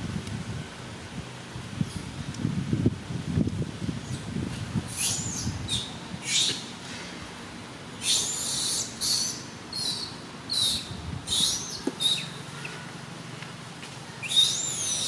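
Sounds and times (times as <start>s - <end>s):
monkey squealing calls: 4.9s - 6.6s, 8.0s - 12.4s, 14.2s - 15.0s.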